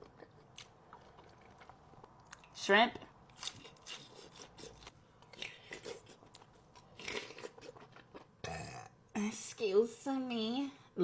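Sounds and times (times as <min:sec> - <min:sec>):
person chewing: 0:00.0 - 0:02.6, 0:03.3 - 0:08.8.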